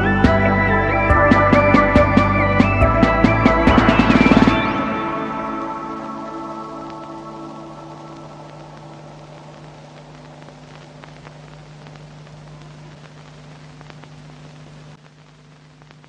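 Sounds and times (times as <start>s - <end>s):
ambient background music: 0.0s - 10.1s
faint hiss: 0.0s - 16.0s
low hum: 0.0s - 16.0s
faint clicks: 6.8s - 16.0s.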